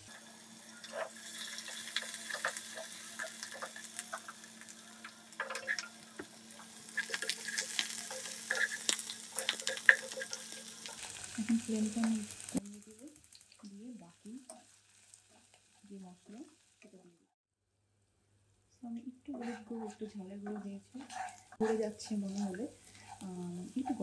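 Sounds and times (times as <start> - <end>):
vegetables sizzling in hot oil: 0.0 - 17.2, 19.4 - 24.0
wooden spatula stirring: 7.0 - 11.0, 19.3 - 24.0.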